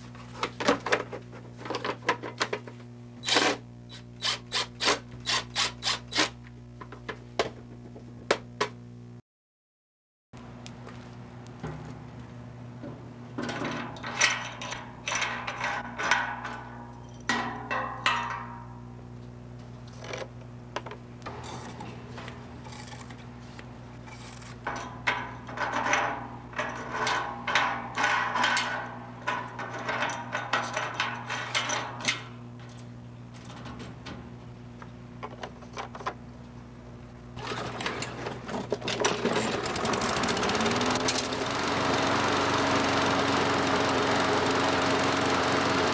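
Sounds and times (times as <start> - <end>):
lawn mower engine starting and running: 11.6 - 18.5, 21.2 - 34.6, 37.2 - 45.9
rattling mechanical clatter: 37.4 - 45.9.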